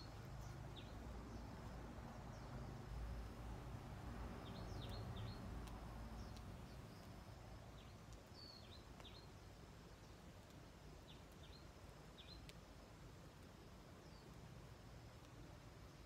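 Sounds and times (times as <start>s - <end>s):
faint bird chirps: 4.4s - 10.2s, 11.0s - 12.6s.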